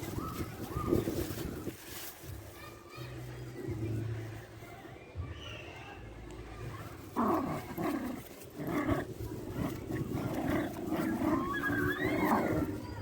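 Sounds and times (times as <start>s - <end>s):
dogs growling: 7.0s - 13.0s.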